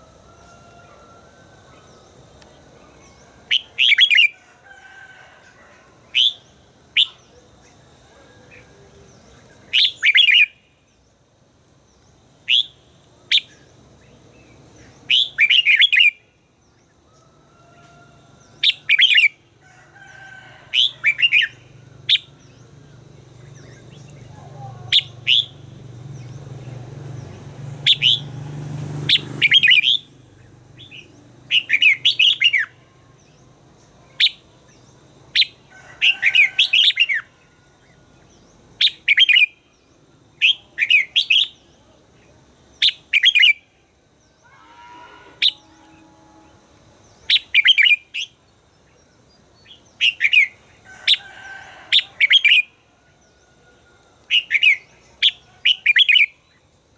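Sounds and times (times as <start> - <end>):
bulbul singing: 20.8 - 37.3.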